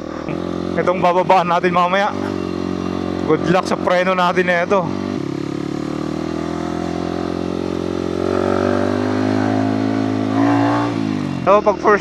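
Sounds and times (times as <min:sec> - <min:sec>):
motorcycle engine under load: 0:00.0 - 0:12.0.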